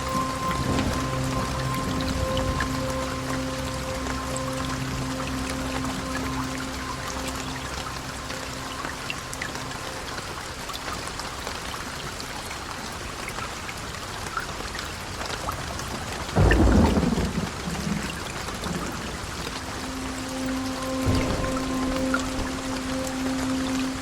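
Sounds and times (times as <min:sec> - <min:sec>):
heavy rain falling: 0:00.0 - 0:24.0
thunderclap rolling into rumble: 0:16.4 - 0:19.4.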